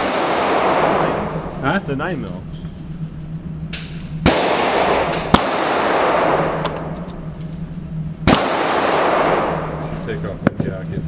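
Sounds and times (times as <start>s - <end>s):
echoing handgun shots: 0.0s - 1.7s, 4.2s - 7.4s, 8.2s - 10.1s
steady low hum: 0.0s - 11.0s.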